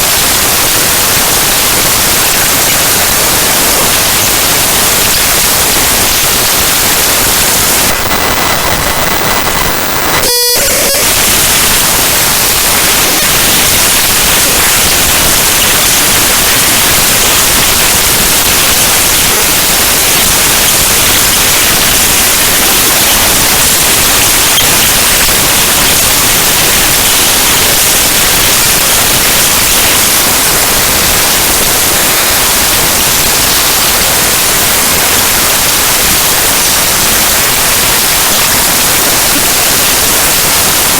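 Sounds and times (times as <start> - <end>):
harsh static noise: 0.0 - 40.9
steady high tone: 7.6 - 16.6
brief buzzing: 7.7 - 15.0.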